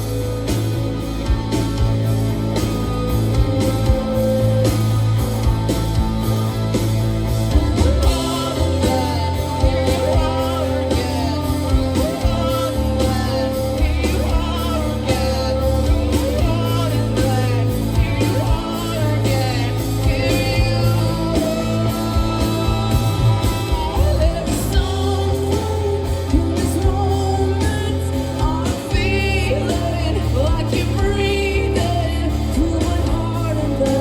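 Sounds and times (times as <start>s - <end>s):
bass guitar: 0.0s - 34.0s
drums: 0.0s - 34.0s
electric guitars: 0.0s - 34.0s
woman singing: 7.5s - 34.0s.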